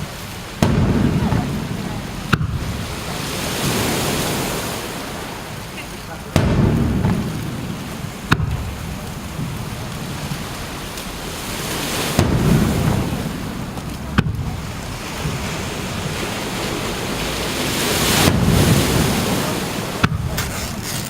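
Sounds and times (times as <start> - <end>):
surf breaking on beach: 0.0 - 21.0
wind on microphone: 0.0 - 21.0.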